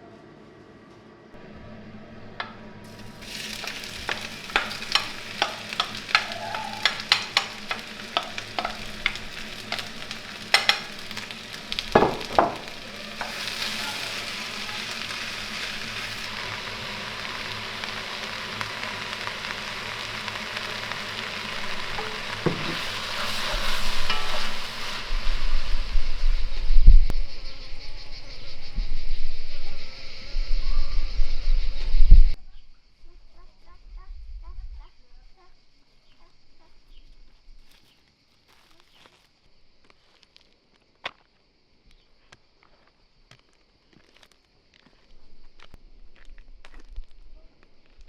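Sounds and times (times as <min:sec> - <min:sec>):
onions sizzling in a frying pan: 0:02.2 - 0:32.4
utensil scraping a pan: 0:02.4 - 0:25.6.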